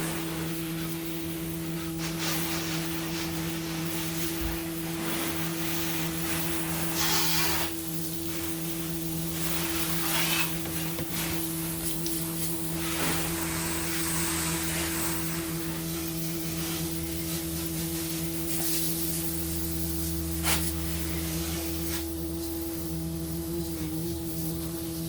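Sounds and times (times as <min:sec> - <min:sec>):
bursts of rustling noise: 0:00.0 - 0:16.0
constant hiss: 0:00.0 - 0:25.0
low mechanical hum: 0:00.0 - 0:25.0.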